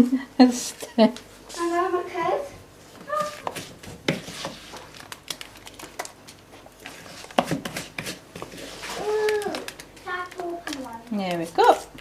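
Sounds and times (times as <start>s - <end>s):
hands pressing mixture into pots: 2.7s - 12.0s.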